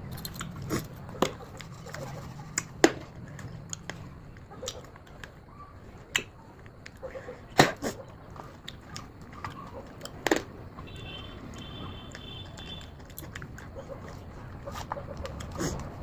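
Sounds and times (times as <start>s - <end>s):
fruit crunching being chewed: 0.0s - 5.4s, 7.8s - 10.2s, 12.1s - 16.0s.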